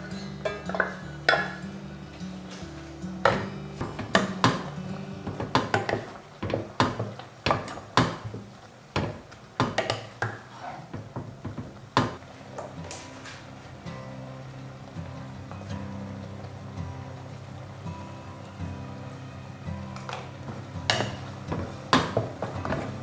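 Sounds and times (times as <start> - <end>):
utensils knocking against cookware: 0.0 - 13.6, 19.8 - 23.0
soft background music: 0.0 - 23.0.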